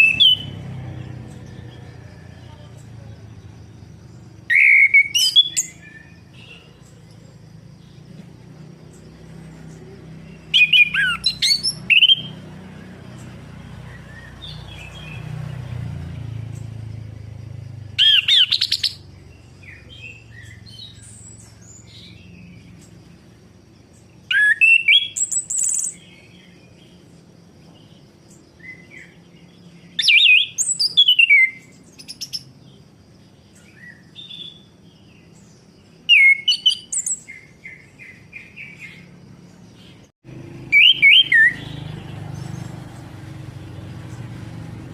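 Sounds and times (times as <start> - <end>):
thrush singing whistled phrases: 0.0 - 0.6, 4.4 - 6.7, 10.4 - 12.5, 18.0 - 19.0, 24.3 - 26.0, 36.1 - 38.8, 40.6 - 42.3.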